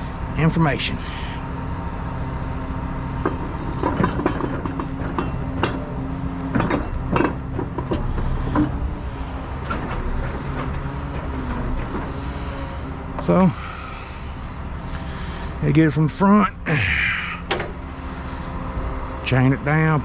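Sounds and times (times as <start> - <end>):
truck engine idling: 0.0 - 20.0
metal clanks: 3.2 - 15.1, 17.4 - 18.1.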